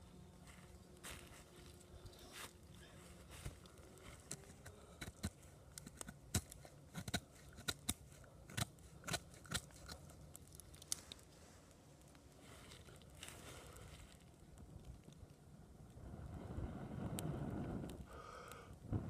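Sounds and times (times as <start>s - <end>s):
twigs snapping and crackling: 0.5s - 15.4s.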